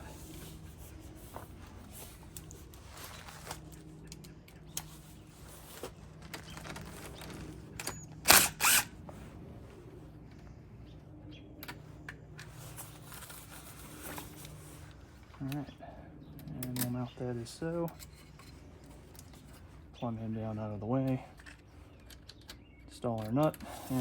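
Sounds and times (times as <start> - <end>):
steady low hum: 0.0 - 22.8
hand tools ratcheting: 7.8 - 8.9
small metal clicks: 21.1 - 23.6.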